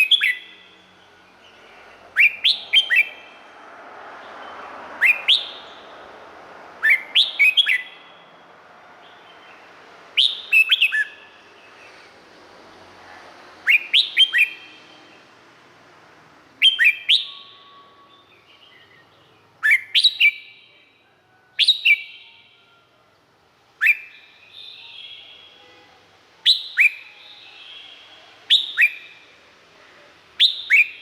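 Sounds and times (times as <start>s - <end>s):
bird singing whistled notes: 0.0s - 3.4s, 4.4s - 6.0s, 6.8s - 8.3s, 9.0s - 11.8s, 13.6s - 15.1s, 16.6s - 20.8s, 21.5s - 22.9s, 23.8s - 25.8s, 26.4s - 29.3s, 30.4s - 31.0s.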